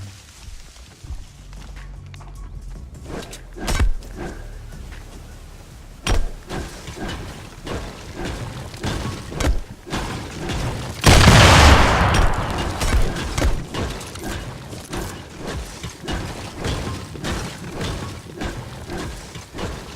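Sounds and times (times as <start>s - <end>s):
booms and cracking thumps: 6.0s - 19.9s.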